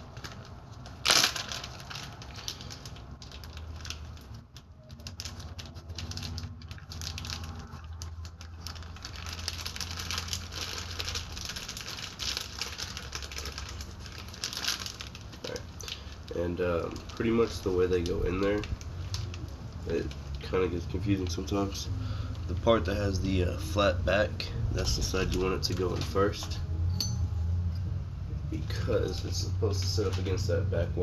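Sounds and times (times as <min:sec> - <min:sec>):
rustling of packaging: 0:00.0 - 0:23.8
low steady hum: 0:00.0 - 0:31.0.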